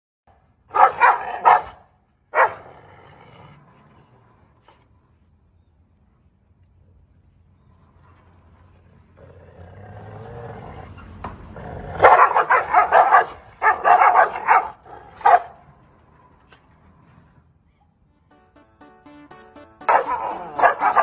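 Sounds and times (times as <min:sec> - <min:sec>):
dog barking loudly: 0:00.7 - 0:02.7, 0:12.0 - 0:15.6, 0:19.9 - 0:21.0.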